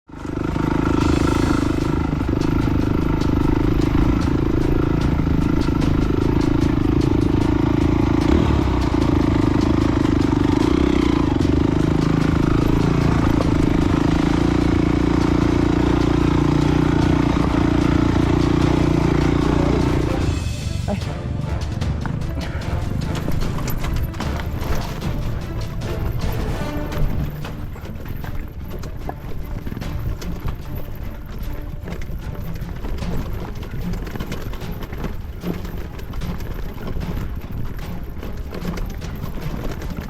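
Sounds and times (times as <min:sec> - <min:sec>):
rapid clicks and rattles: 0:00.1 - 0:20.5, 0:21.6 - 0:40.0
dirt bike engine running: 0:00.1 - 0:40.0.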